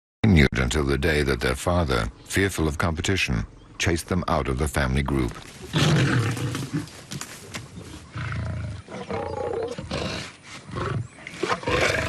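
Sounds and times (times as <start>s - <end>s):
lions roaring: 5.7s - 7.0s, 8.1s - 12.0s.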